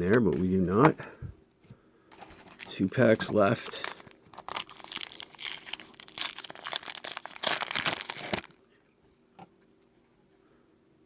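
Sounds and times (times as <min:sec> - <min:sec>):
foil wrapper crinkling: 0:02.2 - 0:08.6.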